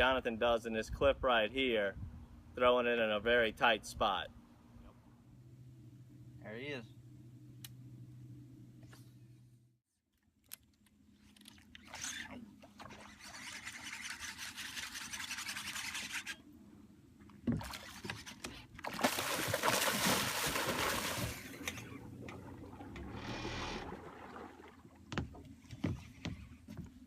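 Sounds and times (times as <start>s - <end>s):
water splashing: 17.5s - 25.4s.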